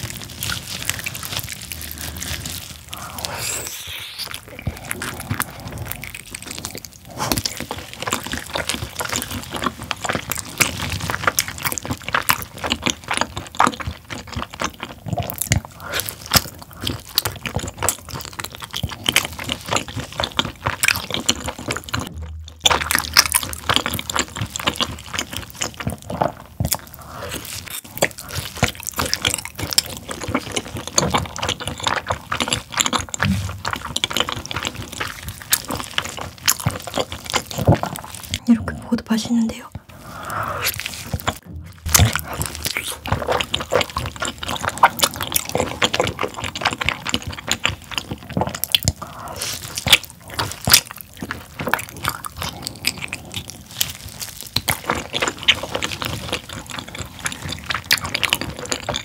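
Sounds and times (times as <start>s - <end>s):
wet chewing and smacking: 0.0s - 38.5s, 39.1s - 59.0s.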